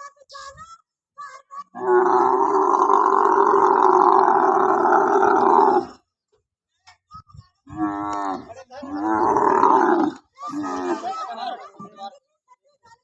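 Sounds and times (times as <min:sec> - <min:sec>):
camel bellowing: 0:01.8 - 0:06.0, 0:07.7 - 0:11.1.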